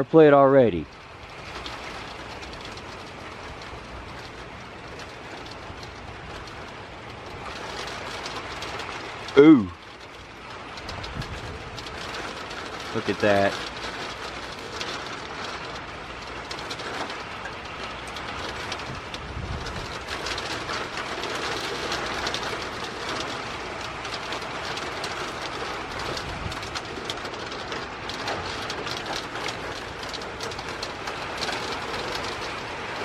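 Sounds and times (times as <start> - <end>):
raindrops ticking on surfaces: 0.0 - 33.0
wind and heavy rain: 0.0 - 33.0
wind buffeting microphone: 10.0 - 12.9, 13.6 - 33.0.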